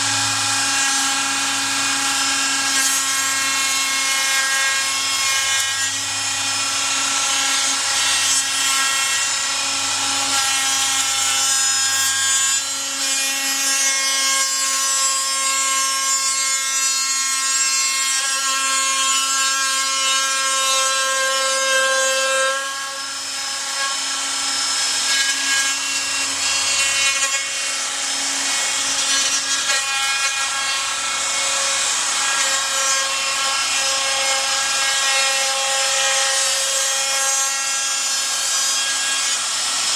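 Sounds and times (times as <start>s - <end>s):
electric router whine: 0.0s - 13.4s, 22.2s - 39.9s
router cutting wood: 0.0s - 39.9s.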